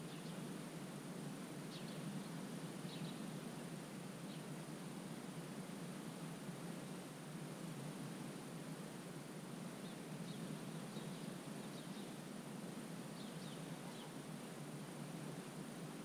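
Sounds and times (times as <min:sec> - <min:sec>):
wetland background hiss: 0:00.0 - 0:16.0
faint high bird chirps: 0:02.9 - 0:03.2, 0:13.2 - 0:14.2.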